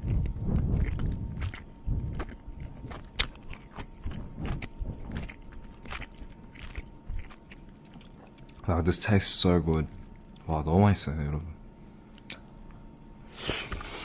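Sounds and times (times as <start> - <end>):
person chewing food: 0.0 - 8.7, 10.0 - 10.5.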